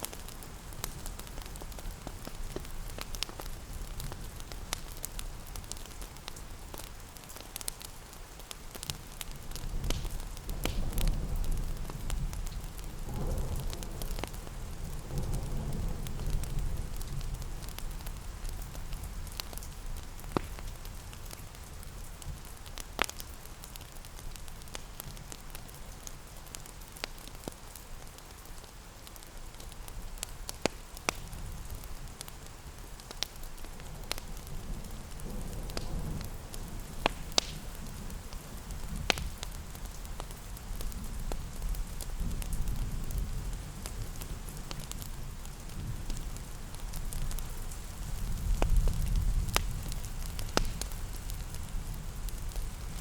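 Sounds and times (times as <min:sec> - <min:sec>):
rain pattering: 0:00.0 - 0:53.0
sharp pops of fire: 0:00.0 - 0:53.0
wood fire crackling: 0:00.0 - 0:53.0.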